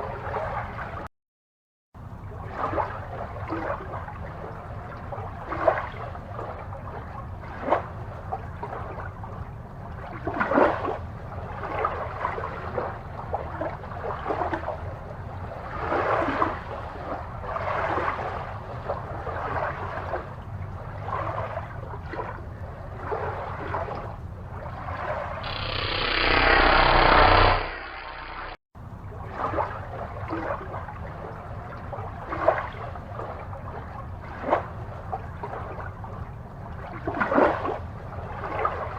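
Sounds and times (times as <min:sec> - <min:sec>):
aquarium water bubbling: 0:02.0 - 0:38.9
steady low hum: 0:02.0 - 0:38.9
water rushing: 0:11.6 - 0:28.6.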